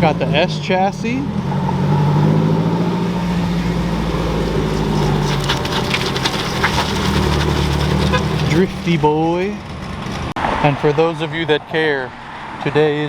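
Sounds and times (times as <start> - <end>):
car engine at low revs: 0.0 - 10.3
rapid crackling: 2.9 - 10.4.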